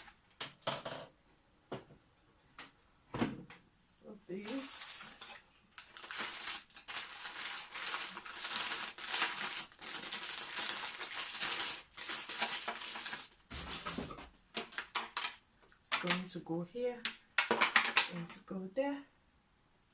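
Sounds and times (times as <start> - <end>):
plastic packaging crinkling: 4.3 - 16.2, 17.4 - 18.1.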